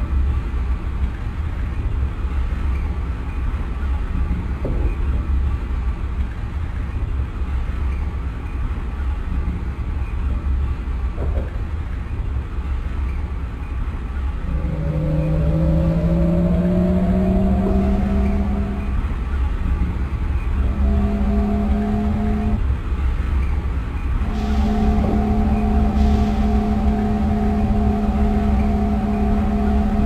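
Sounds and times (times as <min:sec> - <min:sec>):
train rumble: 0:00.0 - 0:30.0
traction motor whine rising: 0:14.4 - 0:19.3, 0:20.6 - 0:22.6, 0:24.2 - 0:30.0.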